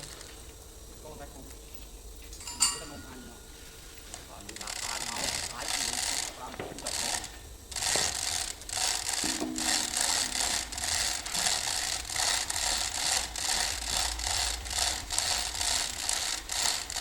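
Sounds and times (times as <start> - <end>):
rasping scraping on metal: 4.6 - 17.0.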